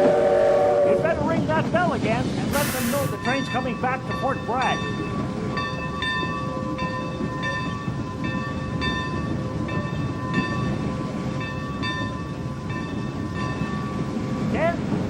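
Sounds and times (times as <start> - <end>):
low rumble of moving train: 0.0 - 15.0
locomotive bell ringing: 2.9 - 14.6.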